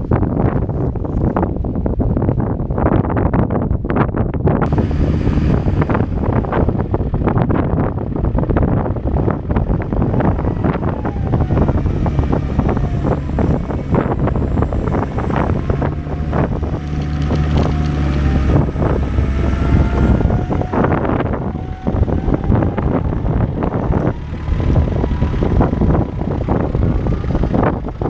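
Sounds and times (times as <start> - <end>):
vehicle engine drone: 0.0 - 28.0
knocks and rattles: 4.7 - 19.6
faint whining tones: 4.7 - 27.7.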